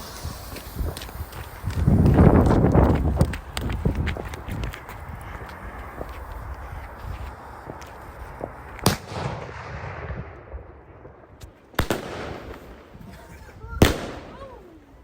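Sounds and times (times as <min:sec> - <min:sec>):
firework bangs: 0:00.0 - 0:03.7, 0:06.9 - 0:14.7
firework crackle: 0:00.0 - 0:15.0
faint firework pops: 0:07.6 - 0:10.3, 0:11.0 - 0:12.8.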